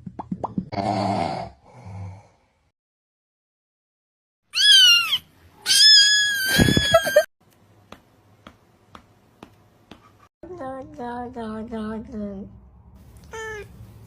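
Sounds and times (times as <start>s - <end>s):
cat meowing: 4.6s - 7.2s, 13.2s - 13.7s.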